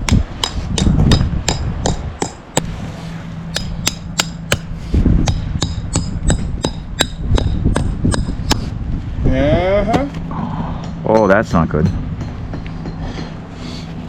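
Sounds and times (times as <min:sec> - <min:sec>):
hammer striking nails: 0:03.5 - 0:08.6.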